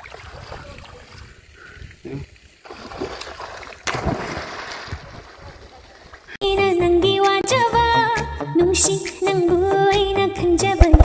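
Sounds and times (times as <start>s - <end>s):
water splashing: 0.0s - 6.4s.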